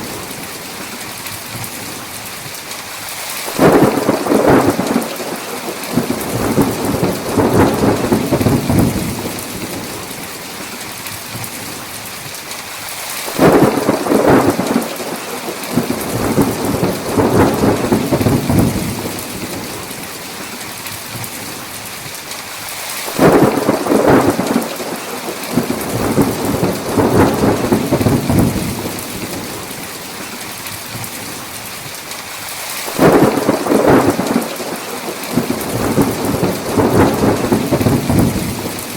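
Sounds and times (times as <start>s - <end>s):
heavy rain hiss: 0.0s - 38.9s
rolling thunder: 3.6s - 10.0s, 13.4s - 19.8s, 23.2s - 29.6s, 32.9s - 38.9s.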